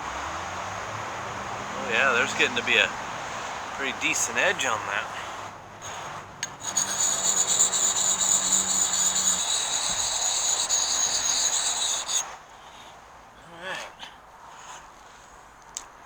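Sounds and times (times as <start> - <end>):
sharpening puck grinding axe edge: 5.8 - 12.3.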